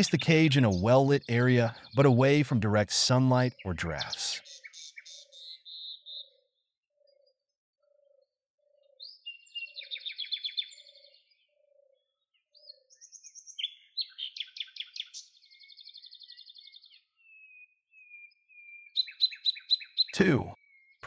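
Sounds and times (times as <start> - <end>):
small birds trilling: 0.0 - 21.0
thin whistled bird notes: 4.4 - 21.0.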